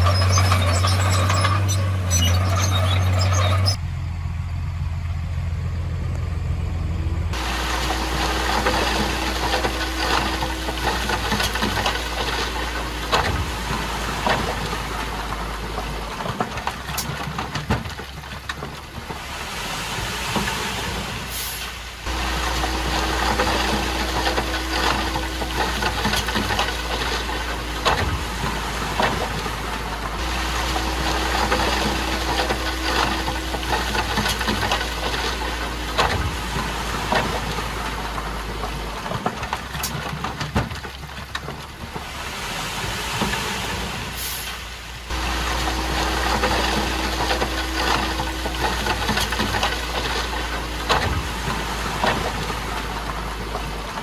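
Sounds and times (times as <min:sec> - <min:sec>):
bulldozer diesel engine running: 0:00.0 - 0:54.0
constant rattle: 0:22.1 - 0:42.0, 0:45.1 - 0:54.0.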